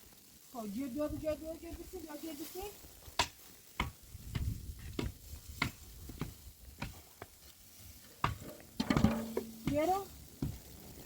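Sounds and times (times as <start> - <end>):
sharp knocks with dull thuds: 3.2 - 7.3, 8.2 - 10.7.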